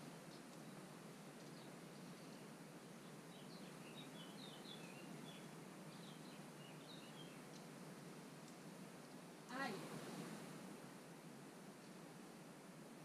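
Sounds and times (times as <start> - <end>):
faint outdoor hiss: 0.0 - 13.0
small bird chirping: 1.4 - 7.8.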